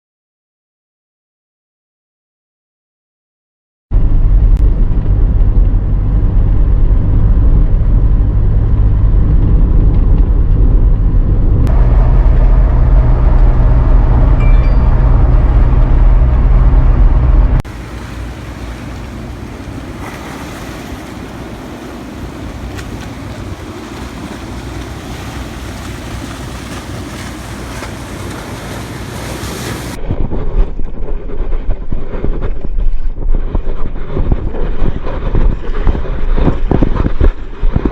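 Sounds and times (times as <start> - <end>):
wind buffeting microphone: 4.0 - 37.9
surf hissing: 17.7 - 30.0.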